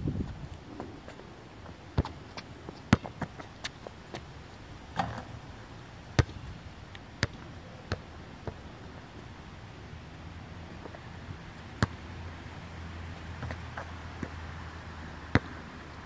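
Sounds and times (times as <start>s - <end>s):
basketball bouncing thuds: 2.9s - 3.3s.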